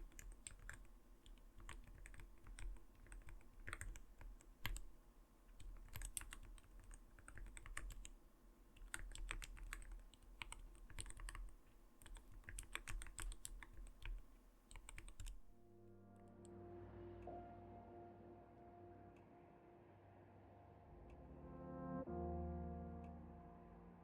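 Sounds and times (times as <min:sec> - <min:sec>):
mechanical keyboard typing: 0:00.0 - 0:15.5
soft music with held tones: 0:15.5 - 0:24.0.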